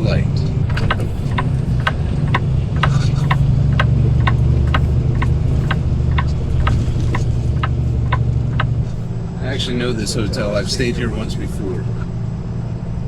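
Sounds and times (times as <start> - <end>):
turn signal clicking: 0.0 - 9.2
diesel truck engine idling: 0.0 - 13.0.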